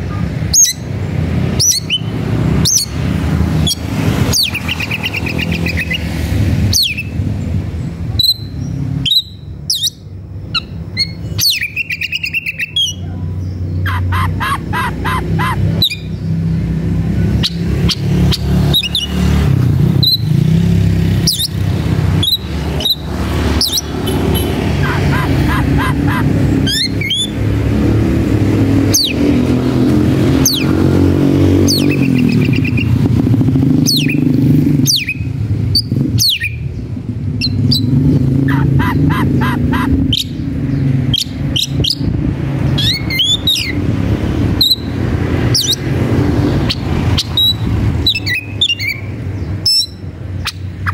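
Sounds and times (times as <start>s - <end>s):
bird whistles and trills: 0.5s - 0.9s, 1.5s - 3.0s, 3.6s - 7.2s, 8.2s - 16.3s, 17.4s - 19.2s, 22.2s - 27.5s, 33.8s - 36.7s, 37.4s - 40.5s, 42.8s - 43.8s, 46.7s - 50.9s.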